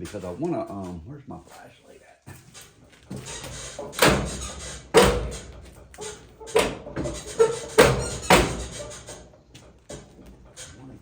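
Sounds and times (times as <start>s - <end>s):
hard objects knocking and clanking: 3.1s - 10.5s.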